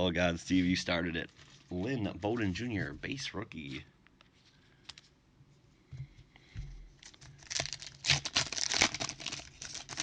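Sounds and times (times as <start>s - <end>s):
packaging crinkling and tearing: 7.0s - 10.0s.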